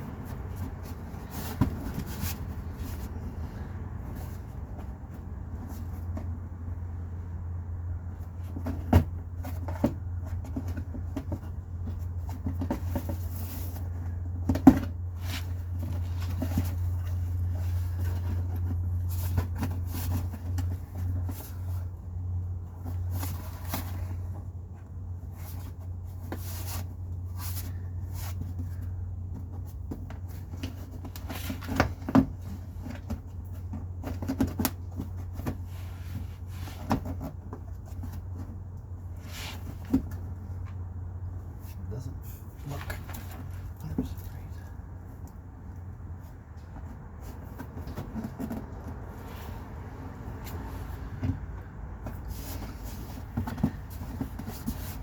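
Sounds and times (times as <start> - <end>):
car parts clicking and clunking: 7.8 - 26.4, 27.6 - 41.5, 45.0 - 55.0.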